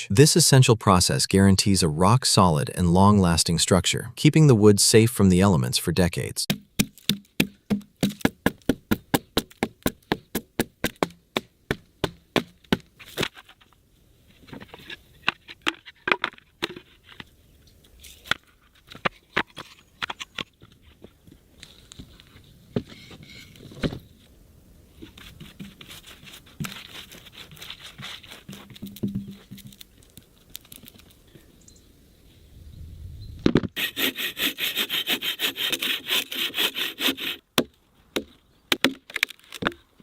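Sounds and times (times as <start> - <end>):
axe chopping into a log: 6.5 - 9.6
wood knocking and scraping: 27.7 - 31.1.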